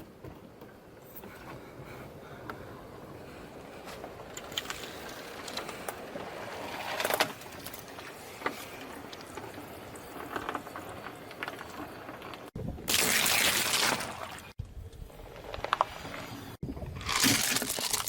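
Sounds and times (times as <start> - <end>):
tyre crushing brittle objects: 17.0 - 18.0.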